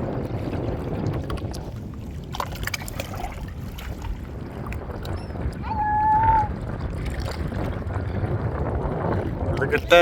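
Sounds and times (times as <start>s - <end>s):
water sloshing against rocks: 0.0s - 5.8s
wind buffeting microphone: 0.0s - 10.0s.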